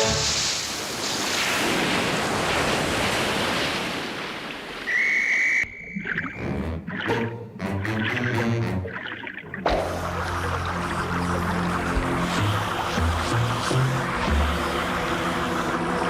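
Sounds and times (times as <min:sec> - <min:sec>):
music: 0:00.0 - 0:00.4, 0:06.4 - 0:16.0
cartoon rushing splashing water: 0:00.0 - 0:16.0
high whistle tone: 0:04.9 - 0:06.5.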